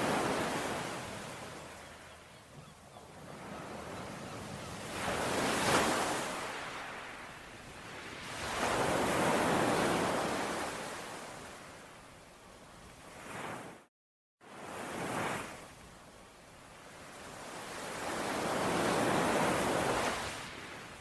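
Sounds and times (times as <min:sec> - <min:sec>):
ocean waves washing onto shore: 0:00.0 - 0:02.2, 0:03.2 - 0:12.0, 0:16.7 - 0:21.0.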